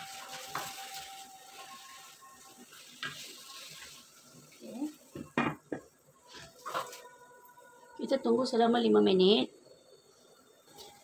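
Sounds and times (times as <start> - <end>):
wooden spatula scraping and knocking pan: 0.0 - 1.8, 5.1 - 7.0
food sizzling and bubbling in wok: 0.0 - 8.1, 8.9 - 11.0.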